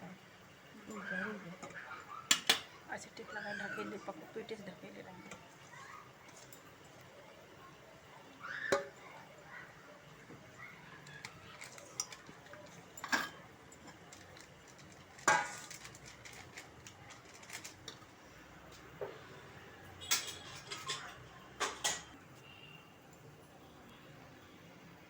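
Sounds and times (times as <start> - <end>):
metal kitchen utensils clattering: 11.0 - 18.1, 20.0 - 22.2.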